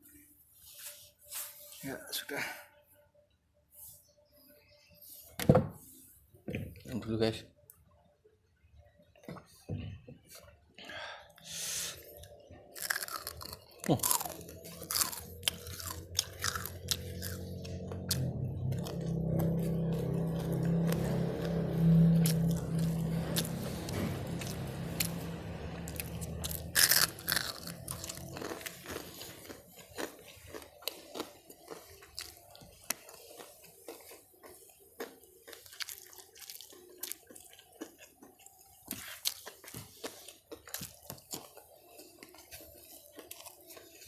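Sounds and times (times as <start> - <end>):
low steady hum: 2.3 - 38.6
crispy food crunching: 12.1 - 44.0.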